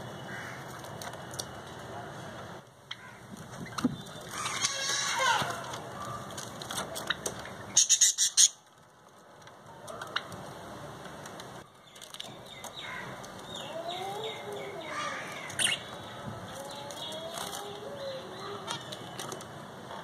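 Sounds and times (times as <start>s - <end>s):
lovebirds chirping: 7.0s - 8.6s, 11.6s - 20.0s.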